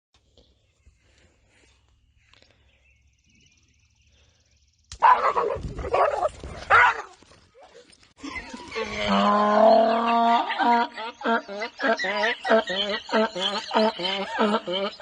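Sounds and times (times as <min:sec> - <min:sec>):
dog yelping: 0:05.0 - 0:07.1.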